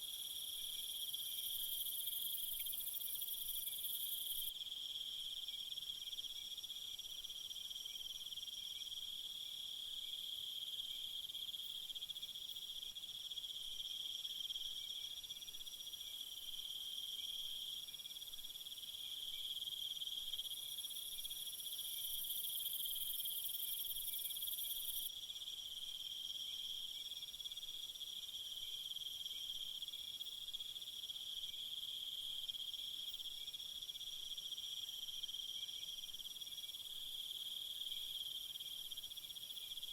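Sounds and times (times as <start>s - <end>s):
crickets chirring: 0.0s - 5.0s, 18.6s - 25.1s.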